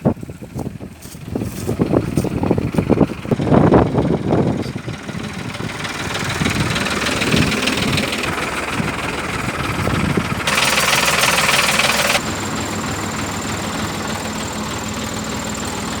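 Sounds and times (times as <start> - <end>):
truck diesel engine idling: 0.0 - 16.0
loud hiss: 10.5 - 16.0.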